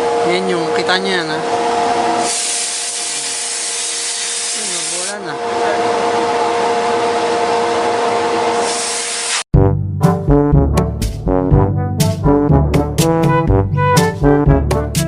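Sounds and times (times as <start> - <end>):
vacuum blower air rush and whine: 0.0 - 9.4.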